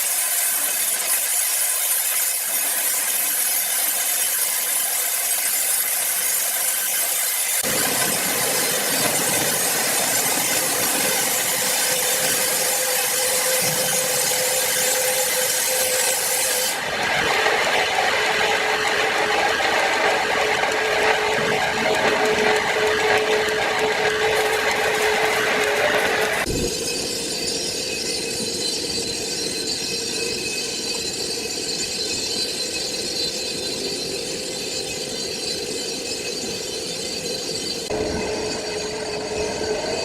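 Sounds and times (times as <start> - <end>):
power saw cutting log: 0.0 - 28.6.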